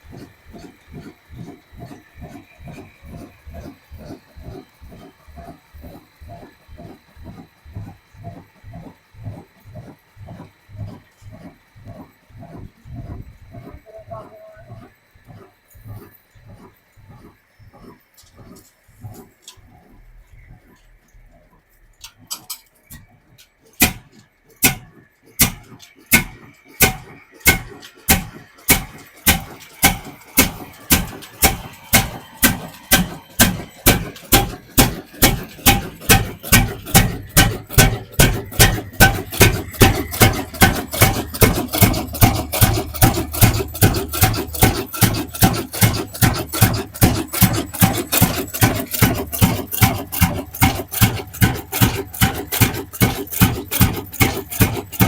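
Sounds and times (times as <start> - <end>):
diesel engine starting: 25.5 - 55.0.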